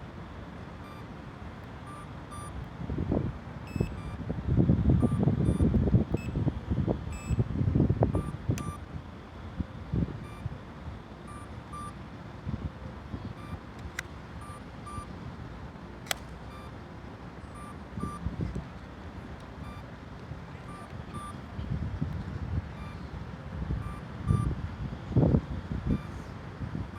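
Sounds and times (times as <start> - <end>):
short high electronic beeps: 3.7 - 4.2, 7.2 - 7.4, 17.6 - 18.2, 20.7 - 21.4
sharp clicks: 13.7 - 14.2, 16.0 - 16.4.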